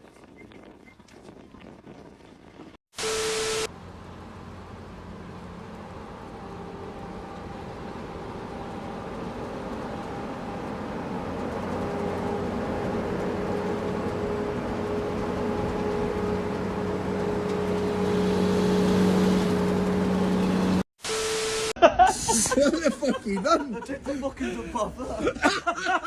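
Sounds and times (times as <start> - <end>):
vehicle engine running: 3.7 - 20.8.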